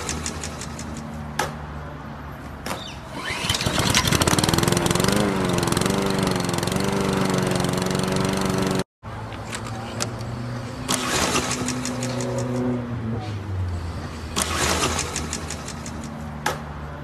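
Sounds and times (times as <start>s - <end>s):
lawn mower engine pull-started: 3.1s - 8.8s, 10.9s - 12.6s.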